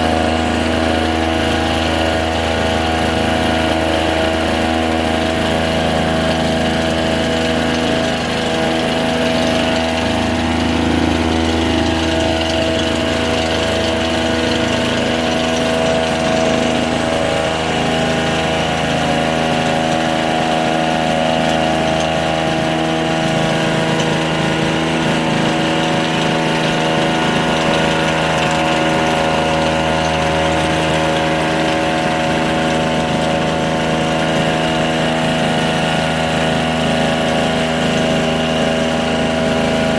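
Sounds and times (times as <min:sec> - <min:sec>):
small two-stroke engine running: 0:00.0 - 0:39.9.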